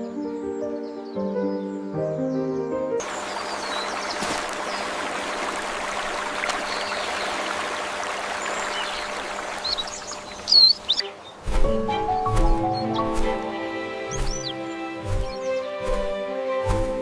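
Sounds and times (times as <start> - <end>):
birds chirping: 0.0 - 17.0
stream flowing: 3.0 - 11.6.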